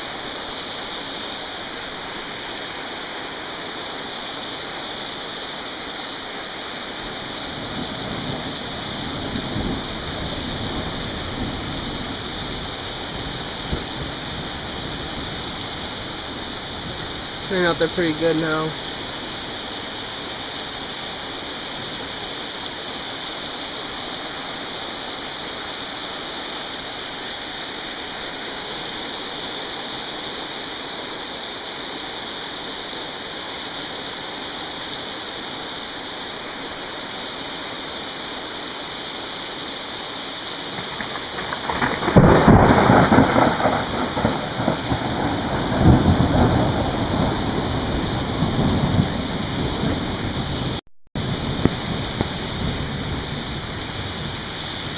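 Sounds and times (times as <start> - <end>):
heavy rain falling: 0.0 - 54.9
thunder clap and rumble: 7.1 - 18.8, 40.7 - 54.9.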